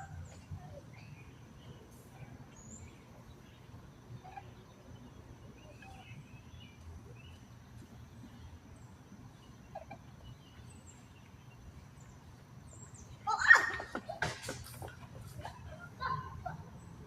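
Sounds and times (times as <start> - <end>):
faint bird chirps: 0.0 - 13.4
low background hum: 0.0 - 17.0.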